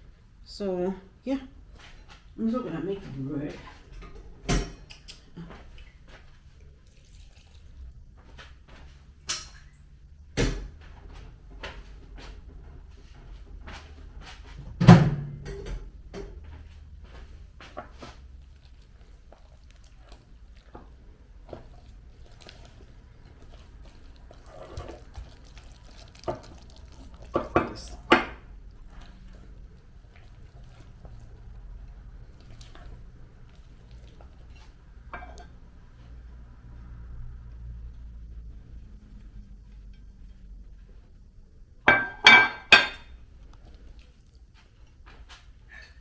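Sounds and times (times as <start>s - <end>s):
wet stirring of batter: 1.2s - 14.6s, 16.1s - 46.0s
light clicks of kitchen items: 1.5s - 46.0s
utensils clinking against a bowl: 3.5s - 5.4s, 21.5s - 28.5s, 34.5s - 35.6s, 41.9s - 43.1s.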